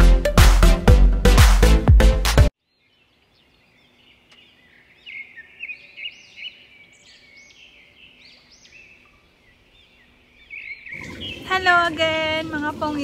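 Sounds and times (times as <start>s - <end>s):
birds chirping: 2.6s - 13.0s.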